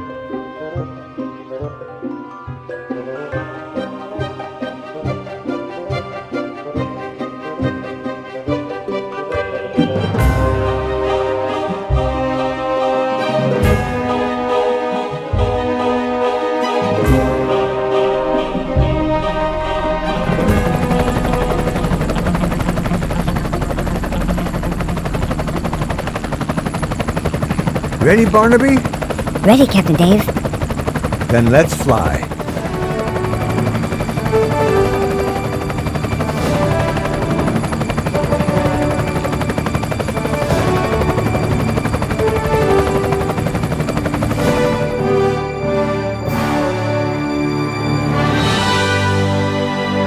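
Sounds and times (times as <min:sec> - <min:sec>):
background music: 0:00.0 - 0:50.0
helicopter rotor blades chopping: 0:18.8 - 0:45.5.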